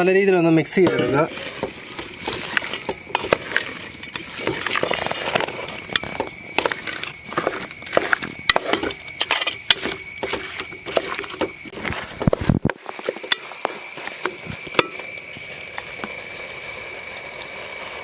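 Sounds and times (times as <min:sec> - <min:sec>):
faint high whine: 0:00.0 - 0:18.0
spatula scraping a pan: 0:00.9 - 0:14.3.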